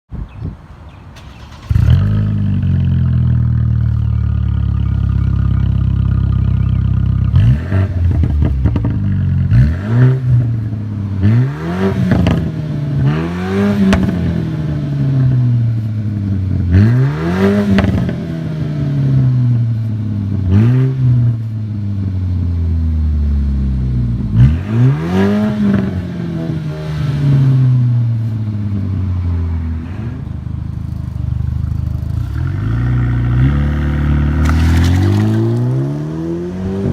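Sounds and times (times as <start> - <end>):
car engine starting: 1.1 - 36.9
car engine idling: 1.2 - 7.4, 28.3 - 35.2
car engine revving: 1.2 - 15.5, 24.2 - 36.9.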